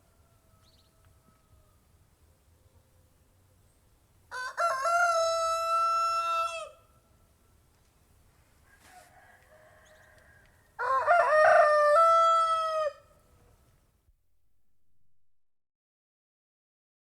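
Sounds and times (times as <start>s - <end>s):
rooster crowing: 0.0s - 1.8s, 4.3s - 6.9s, 8.6s - 13.2s.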